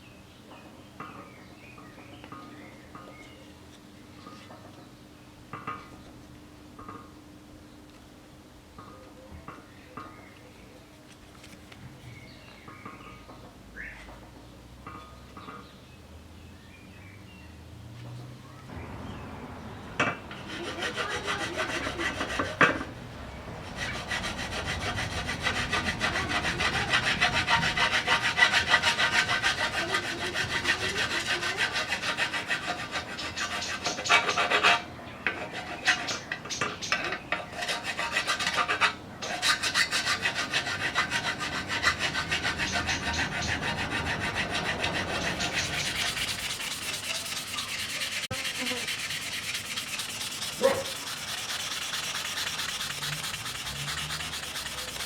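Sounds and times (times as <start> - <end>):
hand rubbing a surface: 42.5 - 55.0.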